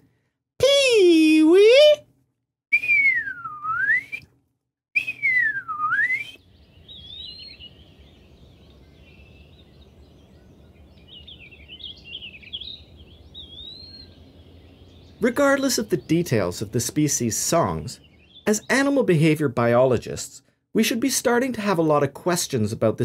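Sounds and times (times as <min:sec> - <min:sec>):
bird whistle dropping and rising: 0:02.7 - 0:04.3, 0:05.0 - 0:07.7
faint high bird twittering: 0:05.0 - 0:19.1.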